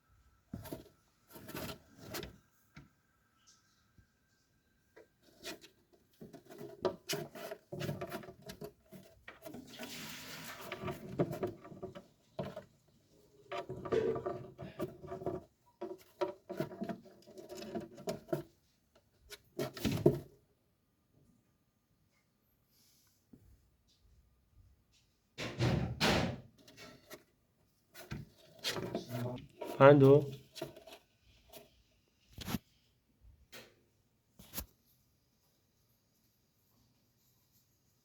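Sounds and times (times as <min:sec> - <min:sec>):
parrot scratching and tapping on wood: 0:05.0 - 0:18.6, 0:27.9 - 0:31.7.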